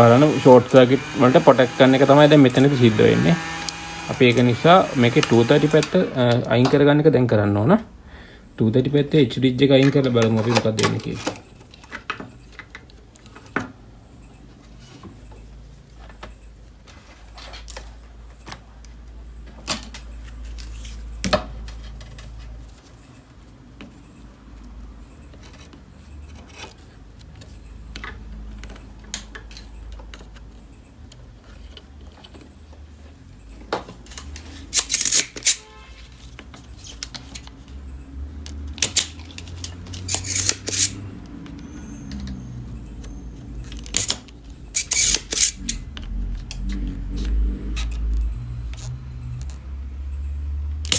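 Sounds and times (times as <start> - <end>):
hand tools clicking on circuit board: 38.4 - 50.9.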